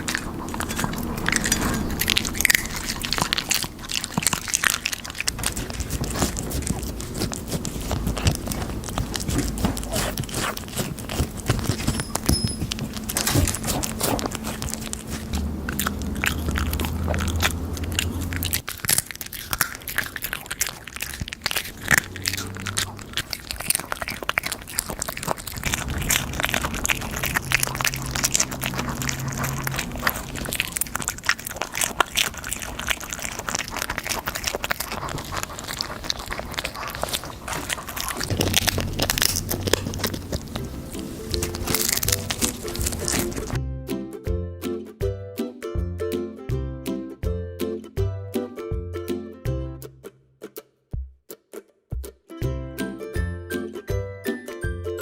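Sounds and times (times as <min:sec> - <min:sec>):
pets crunching crisp chips: 0:00.0 - 0:43.6.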